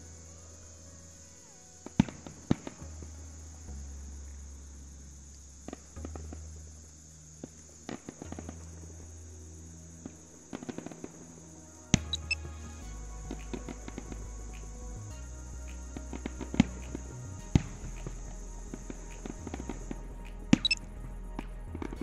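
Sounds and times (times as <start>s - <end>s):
high-pitched background noise: 0.0s - 22.0s
low rumble: 0.0s - 22.0s.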